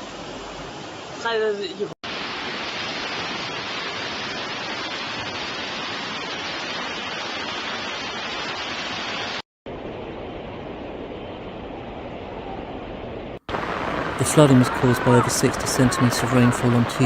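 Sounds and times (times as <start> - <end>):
water rushing: 0.0 - 11.0, 13.2 - 17.0.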